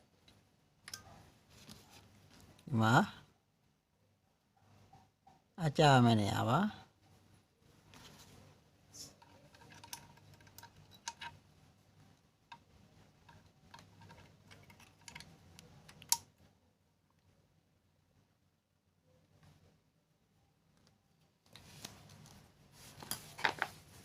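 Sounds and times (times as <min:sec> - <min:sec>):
small metal clicks and taps: 0:00.2 - 0:01.1, 0:09.2 - 0:11.4, 0:12.5 - 0:16.3.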